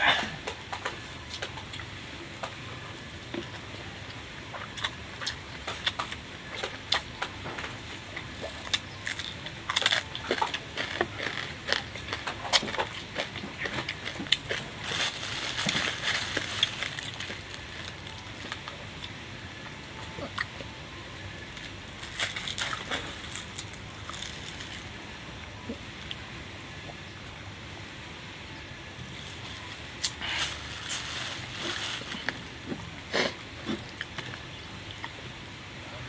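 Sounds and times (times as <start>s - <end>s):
person chewing crunchy food: 4.2s - 19.2s, 21.5s - 25.0s, 29.2s - 35.2s.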